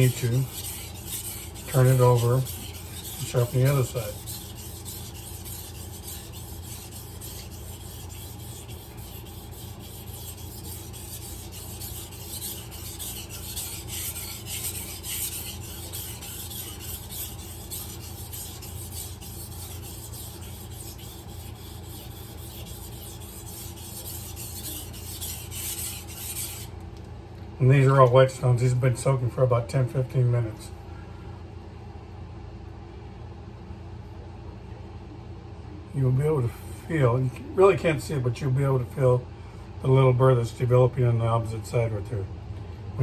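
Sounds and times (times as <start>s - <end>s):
knife scraping on whetstone: 0.0s - 26.7s.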